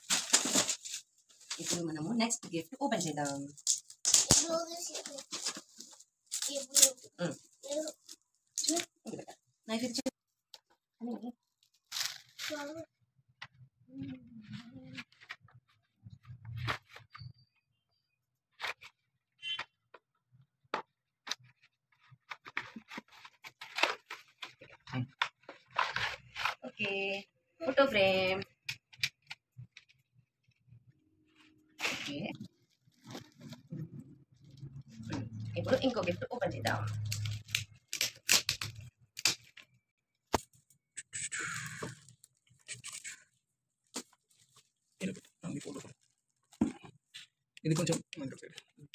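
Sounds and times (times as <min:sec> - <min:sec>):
packaging rustle: 0:00.0 - 0:01.8, 0:03.2 - 0:08.9
packaging crinkling and rustling: 0:00.0 - 0:01.9, 0:02.9 - 0:09.2, 0:11.5 - 0:12.7, 0:21.1 - 0:26.6, 0:31.8 - 0:33.7, 0:43.8 - 0:47.9.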